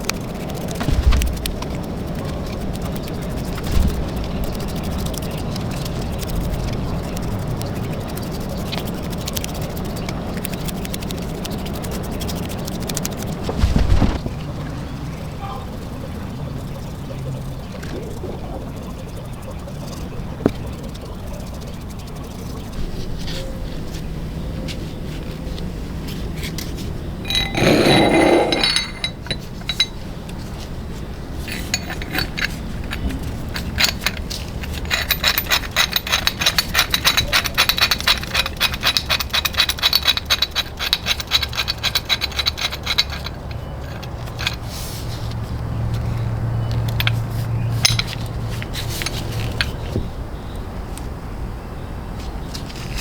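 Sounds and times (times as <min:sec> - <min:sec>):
metallic clank with ring: 0:27.2 - 0:30.0, 0:31.5 - 0:34.2.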